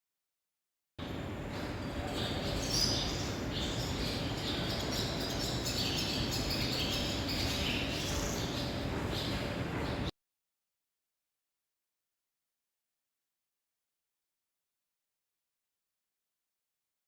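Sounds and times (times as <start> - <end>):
swallows twittering: 1.0 - 10.1.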